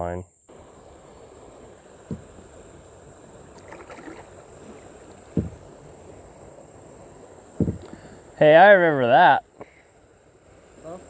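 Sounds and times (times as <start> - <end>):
dull knocks on kayak hull: 2.0 - 2.5, 5.1 - 5.8, 7.6 - 8.1.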